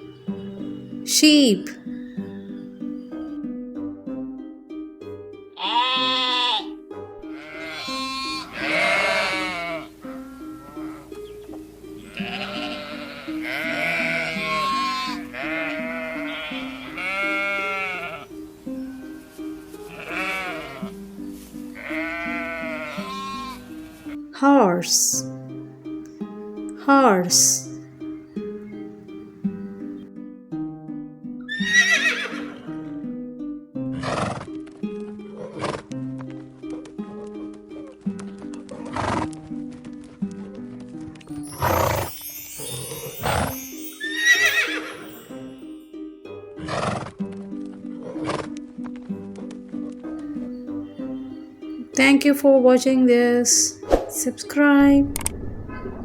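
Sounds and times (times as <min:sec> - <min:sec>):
light plucked background music: 0:00.0 - 0:55.8
sheep bleating: 0:05.6 - 0:11.1, 0:12.0 - 0:18.3, 0:19.2 - 0:21.0, 0:21.8 - 0:24.2
horse whinnying: 0:07.4 - 0:11.0, 0:12.2 - 0:18.3, 0:19.9 - 0:20.9, 0:21.8 - 0:24.2, 0:31.5 - 0:32.8, 0:34.0 - 0:34.6, 0:41.5 - 0:42.2, 0:43.2 - 0:45.0.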